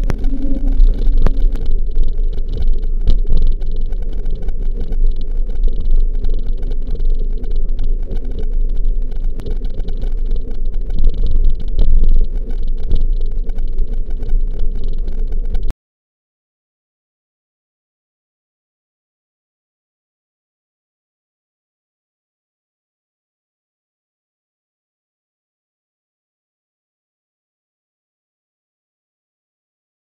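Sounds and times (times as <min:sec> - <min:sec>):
wind rushing over microphone: 0:00.0 - 0:06.2
small clicks and rattles: 0:00.0 - 0:15.7.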